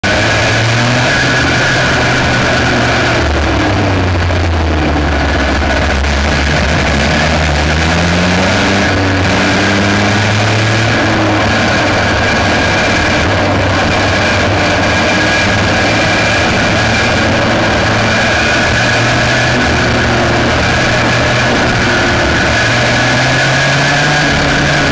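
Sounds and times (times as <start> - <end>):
rotary kart engine drone: 0.0 - 24.9.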